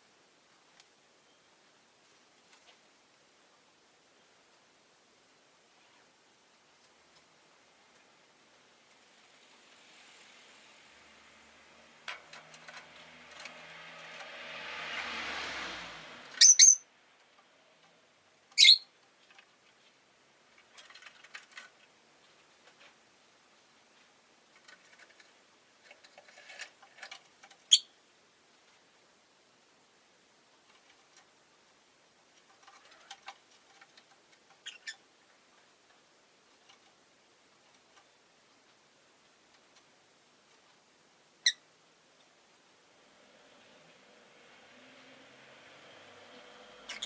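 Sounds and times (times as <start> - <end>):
bird chirping shrilly: 16.4 - 16.8, 18.6 - 18.9.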